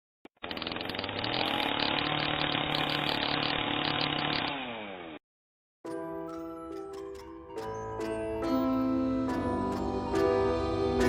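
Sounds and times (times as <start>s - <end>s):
power tool motor running: 0.3s - 5.2s.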